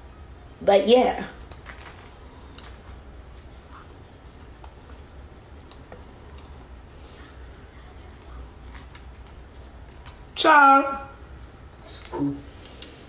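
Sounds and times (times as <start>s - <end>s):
low steady hum: 0.0s - 13.0s
faint chewing: 1.5s - 10.4s.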